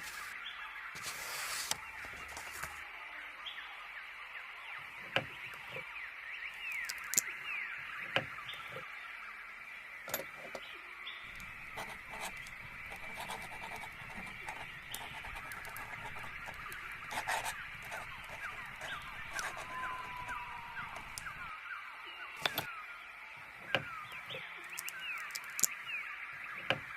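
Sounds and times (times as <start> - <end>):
birds chirping: 4.8 - 26.9
sharp clicks: 6.7 - 7.3, 11.3 - 21.5, 24.6 - 25.8.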